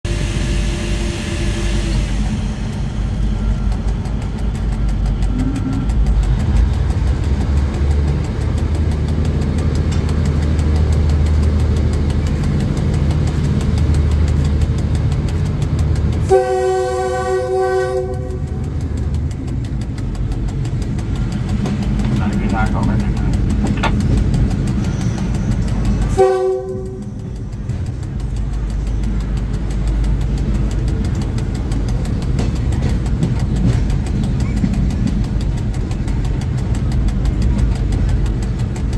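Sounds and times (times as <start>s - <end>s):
train rumbling along track: 0.0s - 38.9s
train horn blast: 0.1s - 3.0s, 16.2s - 18.8s, 26.1s - 27.2s.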